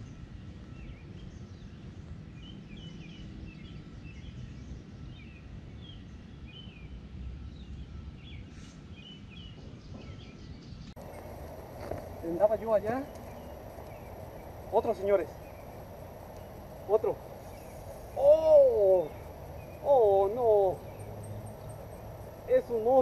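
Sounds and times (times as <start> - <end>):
small birds chirping: 0.0 - 23.0
low outdoor rumble: 9.7 - 23.0.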